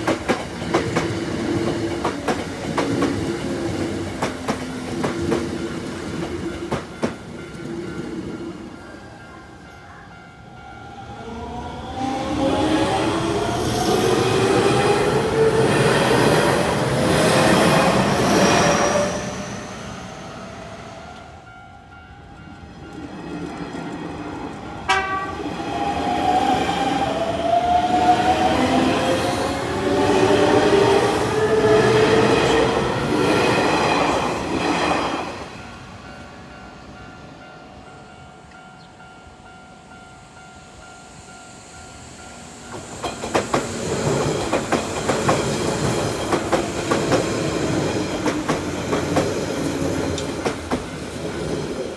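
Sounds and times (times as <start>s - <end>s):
train whining tones: 0.0s - 37.5s, 38.1s - 51.9s
electric train passing: 0.0s - 51.9s
wheel and rail noise: 41.1s - 51.9s.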